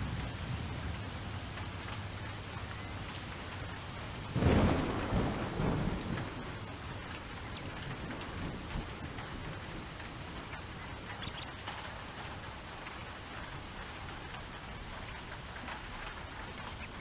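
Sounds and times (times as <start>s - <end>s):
steady rain: 0.0s - 17.0s
thunder clap rumbling: 4.2s - 11.2s.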